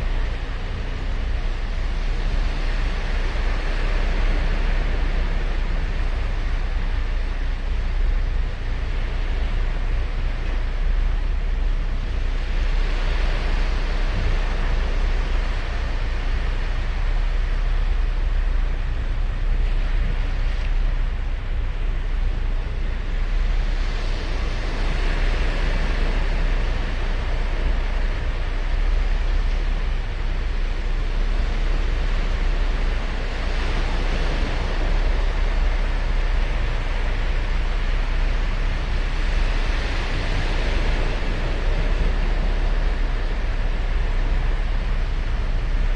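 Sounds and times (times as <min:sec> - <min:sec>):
low surf rumble: 0:00.0 - 0:45.9
waves breaking on beach: 0:00.0 - 0:45.9.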